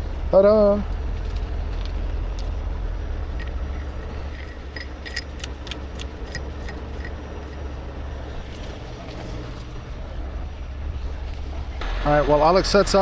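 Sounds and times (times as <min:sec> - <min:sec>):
tow truck engine rumbling: 0:00.0 - 0:13.0
metallic clinks and jingles: 0:01.1 - 0:02.6, 0:03.3 - 0:07.9.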